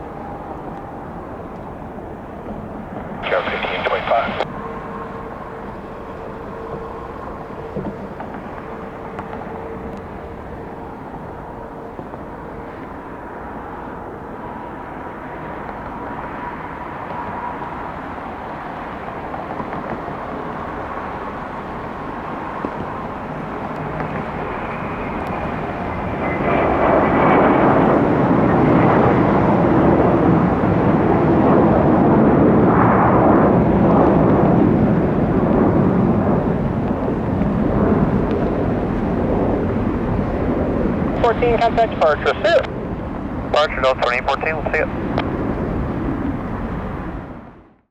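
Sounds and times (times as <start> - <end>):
faint engine whine: 0.0 - 47.9
jet engines at takeoff: 0.0 - 47.9.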